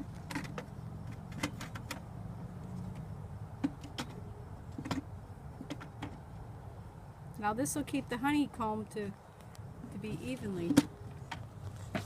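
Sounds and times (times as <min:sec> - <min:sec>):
wooden frames clicking and knocking: 0:00.0 - 0:06.3.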